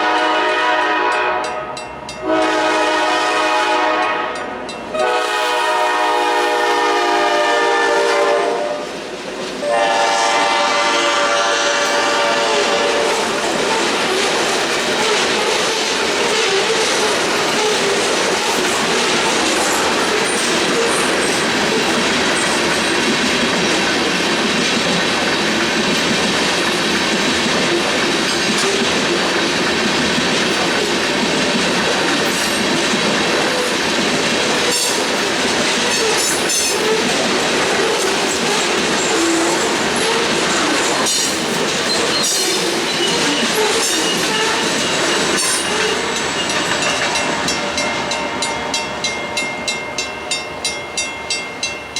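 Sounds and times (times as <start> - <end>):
crossing warning bell ringing: 0.0 - 2.6, 4.0 - 5.2, 39.7 - 51.9
train wheels rumbling on rails: 0.0 - 51.9
wheels clicking over rail joints: 13.1 - 48.8.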